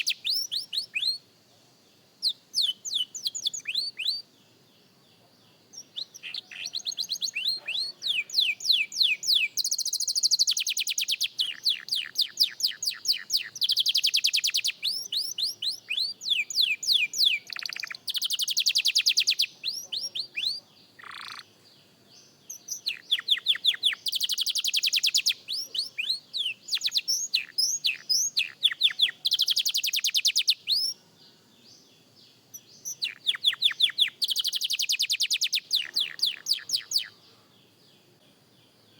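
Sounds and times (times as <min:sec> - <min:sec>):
canary singing trills: 0:00.0 - 0:01.3, 0:02.0 - 0:38.9.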